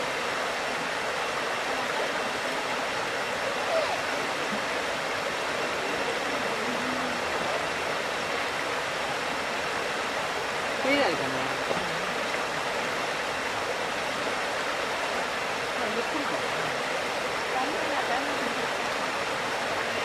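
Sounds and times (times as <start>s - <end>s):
waterfall rushing: 0.0s - 20.0s
faint voices: 1.5s - 8.9s.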